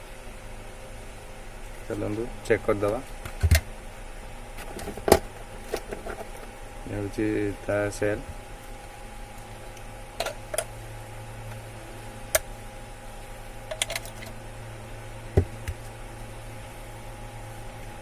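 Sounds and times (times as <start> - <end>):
steady low hum: 0.0 - 18.0
small parts clicking and tapping: 13.7 - 14.4.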